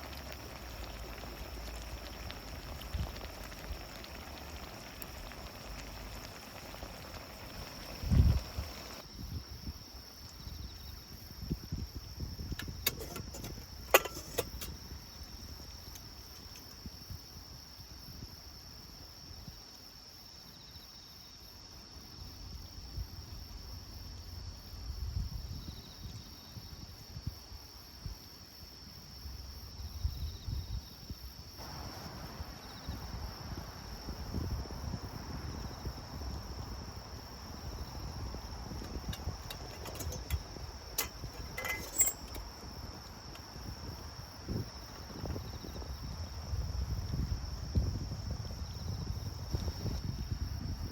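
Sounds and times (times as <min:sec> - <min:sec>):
soft hiss: 0:00.0 - 0:09.3
insects trilling: 0:00.0 - 0:50.9.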